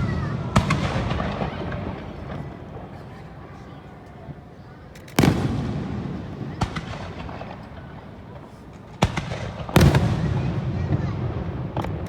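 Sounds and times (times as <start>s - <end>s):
fireworks booming: 0.0s - 3.6s, 5.2s - 12.0s.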